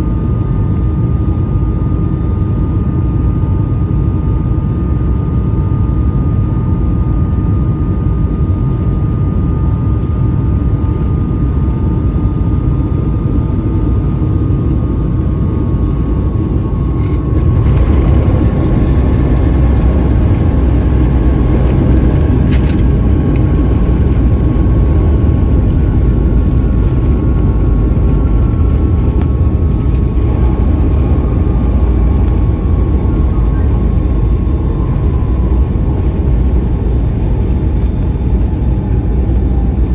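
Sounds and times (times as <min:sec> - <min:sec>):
airplane cabin engine rumble: 0:00.0 - 0:39.9
thin whine: 0:13.2 - 0:39.9.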